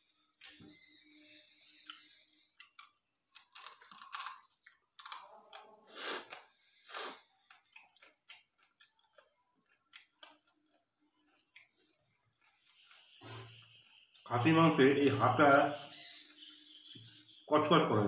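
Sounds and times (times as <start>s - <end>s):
chewing and crunching meat: 1.7s - 15.0s.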